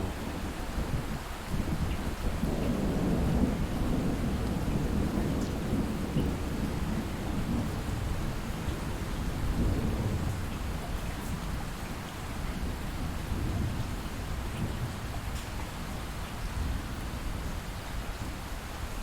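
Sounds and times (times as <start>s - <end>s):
distant thunder rumbling: 0.0s - 11.5s
light rain: 0.0s - 19.0s.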